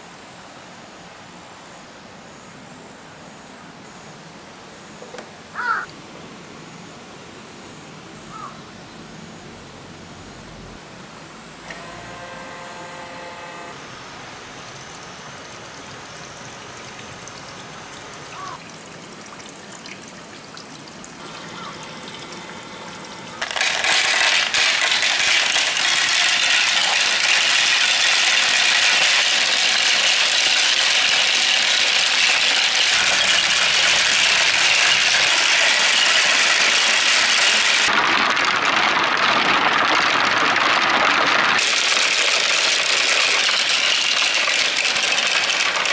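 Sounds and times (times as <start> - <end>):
flowing water: 15.3 - 45.9.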